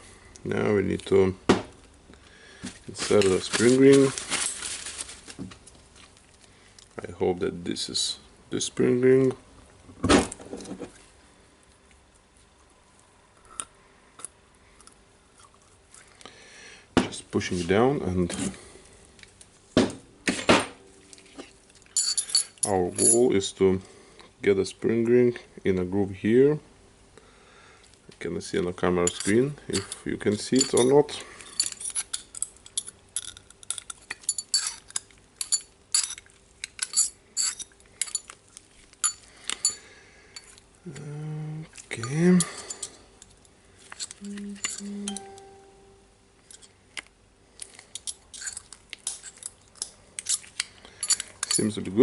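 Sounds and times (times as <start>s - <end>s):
metal clicks and clinks: 21.9s - 23.3s, 29.0s - 38.4s, 41.9s - 45.5s, 47.6s - 51.8s.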